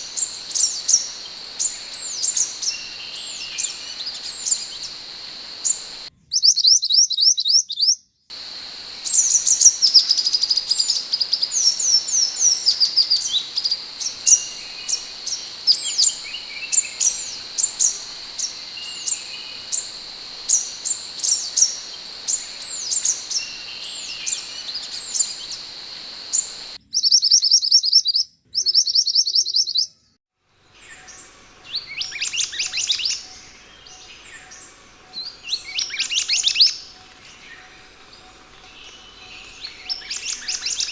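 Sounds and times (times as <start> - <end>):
bird chirping: 0.0 - 6.1, 8.3 - 26.8
thin high hum: 0.0 - 6.1, 8.3 - 26.8.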